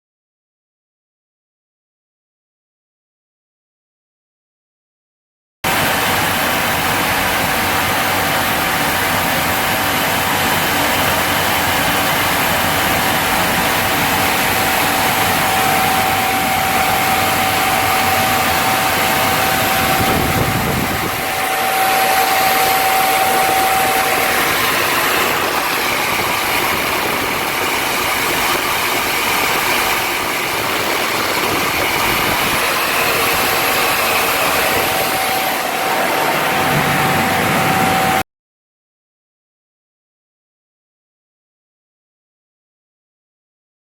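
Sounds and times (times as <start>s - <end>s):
machine whine: 5.7s - 38.2s
washing machine loud hiss: 5.7s - 38.2s.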